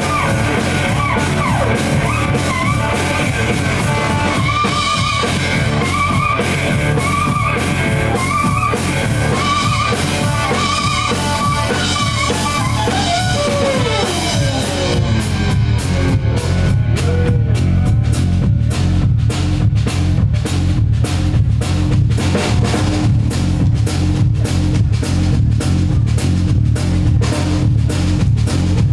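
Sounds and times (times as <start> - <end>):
electric slide guitar riff: 0.0 - 18.2
bass guitar: 0.0 - 28.9
drums: 0.0 - 28.9.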